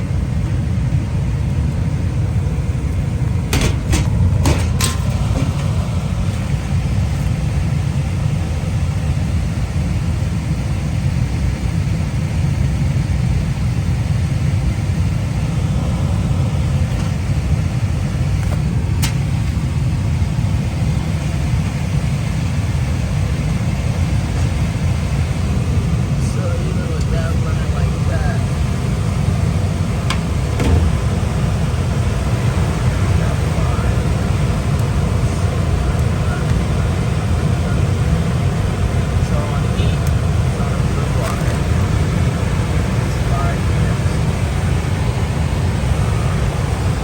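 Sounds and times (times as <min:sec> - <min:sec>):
furnace low rumble: 0:00.0 - 0:47.0.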